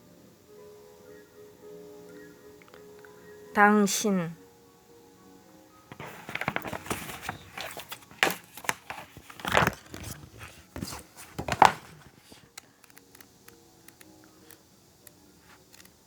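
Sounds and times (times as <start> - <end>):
rustling and crinkling: 5.9 - 13.0.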